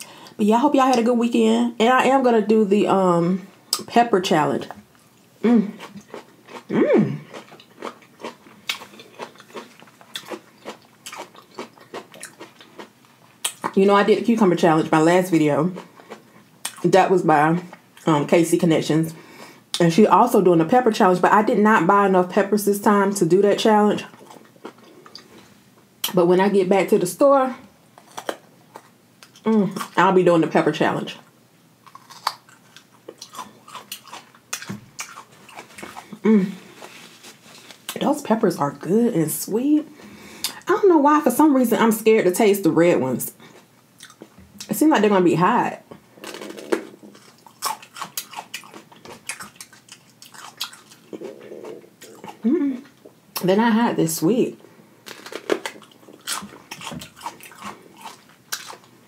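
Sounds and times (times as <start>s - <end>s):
chewing crisp cucumber: 4.7s - 13.8s, 31.8s - 38.0s, 43.5s - 44.7s, 46.2s - 53.2s, 55.0s - 58.9s
person humming: 5.4s - 5.8s, 6.7s - 7.3s, 36.2s - 36.7s, 52.4s - 52.9s
crunching raw pepper: 5.8s - 13.7s, 31.8s - 36.2s, 46.2s - 51.2s, 55.0s - 58.9s.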